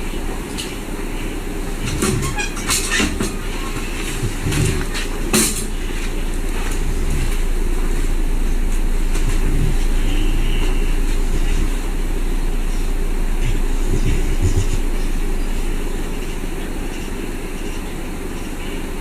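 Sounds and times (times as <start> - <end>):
electrical hum: 0.0 - 19.0
low rumbling noise: 0.0 - 19.0.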